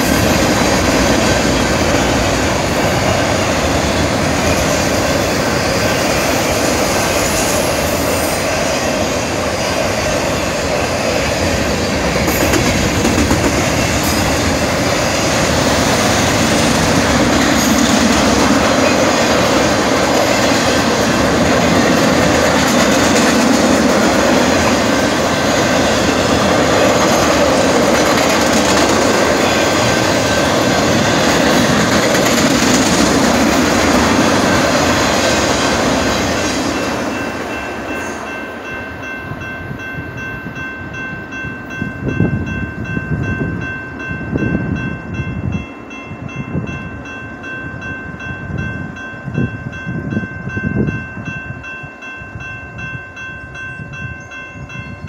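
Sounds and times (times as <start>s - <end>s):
freight train rumbling past: 0.0s - 55.0s.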